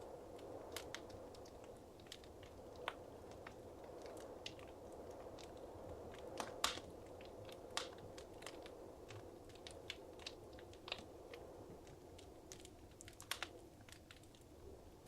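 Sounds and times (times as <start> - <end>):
wood fire crackling and snapping: 0.0 - 15.0.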